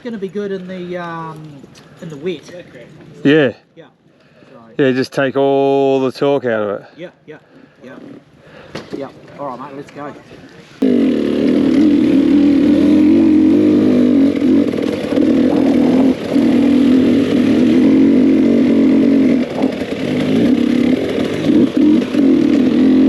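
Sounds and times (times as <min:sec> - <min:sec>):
dirt bike engine running: 0:10.8 - 0:23.0.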